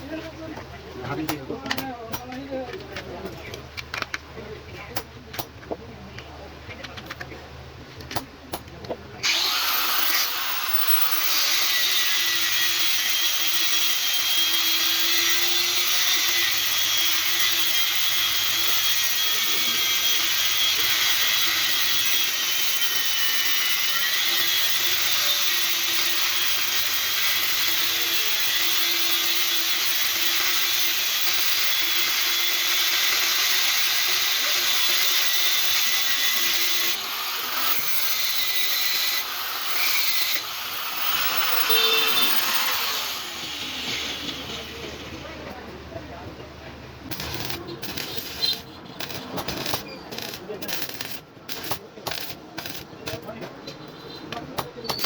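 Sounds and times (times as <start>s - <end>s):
electric power tool whining: 9.2s - 45.2s.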